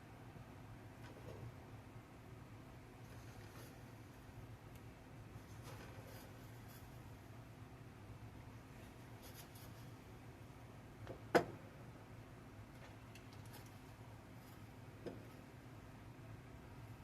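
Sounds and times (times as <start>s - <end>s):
steady low hum: 0.0s - 17.0s
rubbing and scraping of food: 5.4s - 7.1s.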